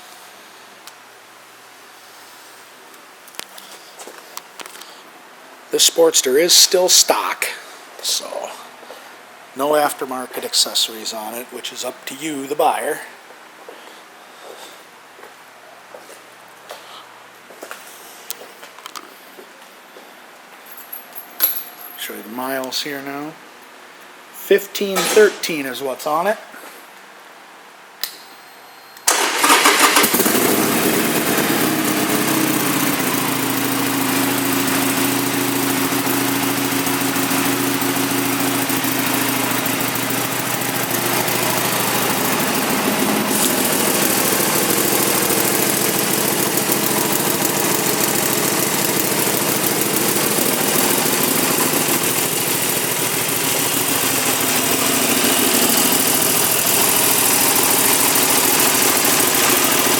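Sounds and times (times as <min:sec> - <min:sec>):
electric starter cranking: 0:29.1 - 0:59.9
motorcycle engine idling: 0:30.1 - 0:59.9.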